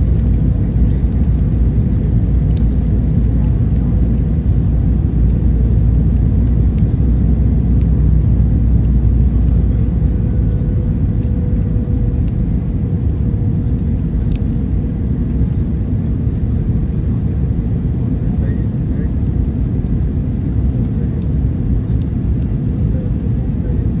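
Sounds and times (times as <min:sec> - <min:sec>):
airplane cabin engine rumble: 0:00.0 - 0:24.0.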